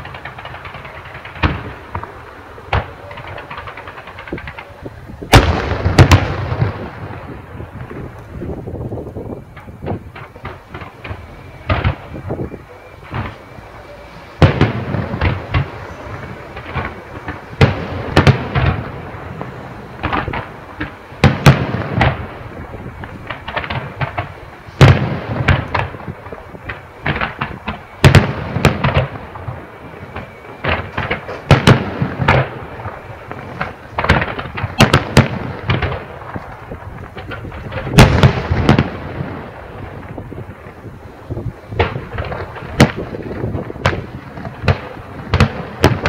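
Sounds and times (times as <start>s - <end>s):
fireworks bursting with sharp bangs: 0.0s - 46.0s.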